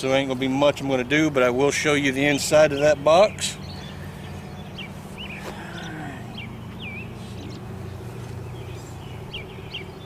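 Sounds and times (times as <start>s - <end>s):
small birds chirping: 0.0s - 10.0s
low hum: 3.5s - 10.0s.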